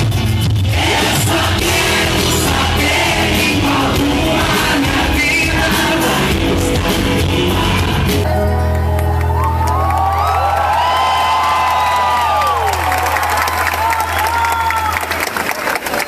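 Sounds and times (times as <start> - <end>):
live band playing: 0.0 - 10.4
person singing: 0.7 - 8.5.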